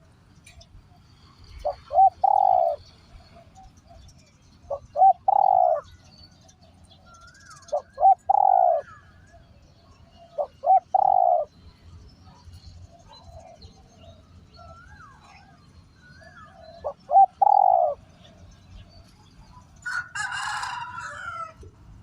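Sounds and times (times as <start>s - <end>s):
faint bird chirps: 0.4s - 19.9s
dove cooing: 1.2s - 4.0s, 4.7s - 6.0s, 7.4s - 9.0s, 10.2s - 11.6s, 16.1s - 18.4s.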